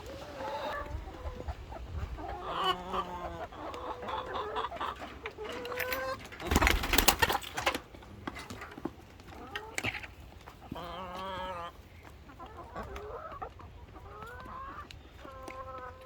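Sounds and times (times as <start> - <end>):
chickens clucking and calling: 0.0 - 16.0.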